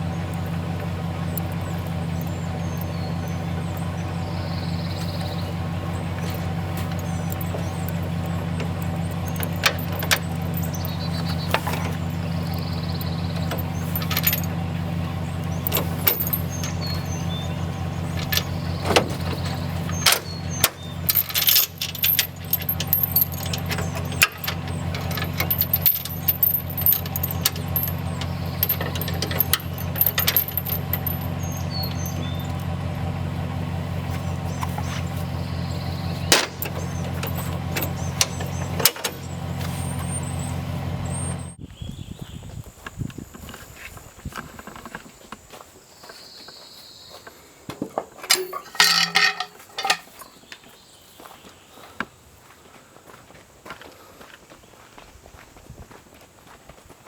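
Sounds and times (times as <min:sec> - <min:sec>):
loose parts rattling and knocking: 0:00.0 - 0:33.2, 0:34.0 - 0:40.1, 0:47.8 - 0:50.7
vehicle engine running: 0:00.0 - 0:47.6.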